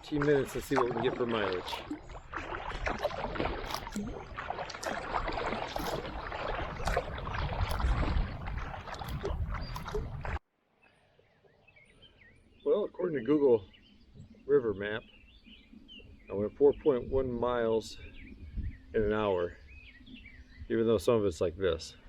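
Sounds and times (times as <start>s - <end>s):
paddle splashing in water: 0.0s - 10.4s
water dripping: 0.0s - 10.4s.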